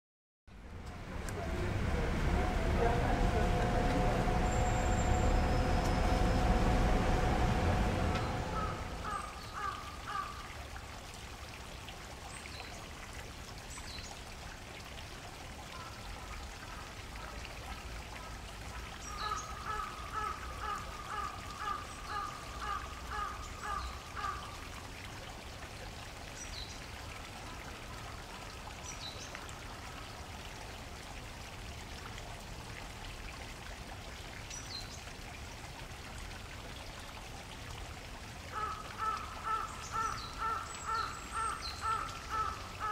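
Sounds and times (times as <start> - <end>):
water flowing: 0.5 - 42.9
bird repeated calls: 8.2 - 10.4.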